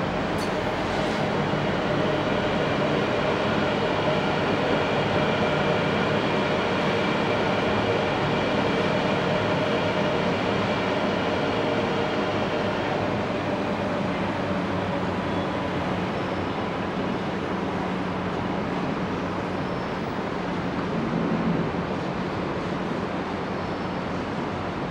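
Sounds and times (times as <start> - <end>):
metro train rumble: 0.0 - 24.9.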